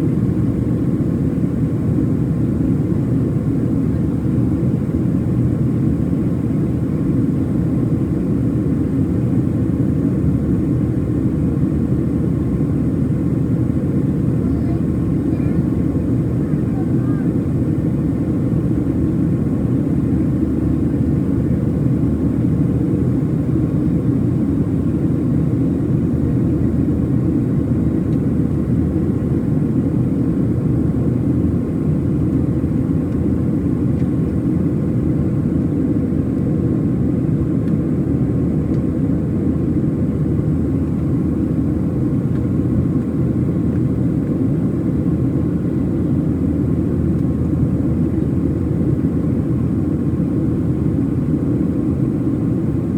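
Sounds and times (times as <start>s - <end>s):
jet engine drone: 0.0s - 52.9s.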